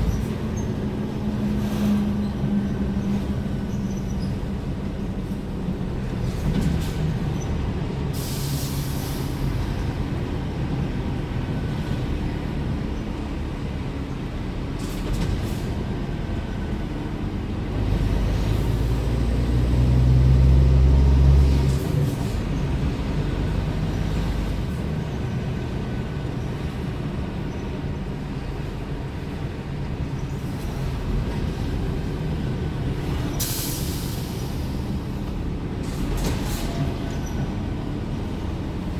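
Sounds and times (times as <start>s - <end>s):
diesel truck engine driving: 0.0s - 38.9s
brief air hisses: 8.2s - 9.4s, 33.4s - 34.8s.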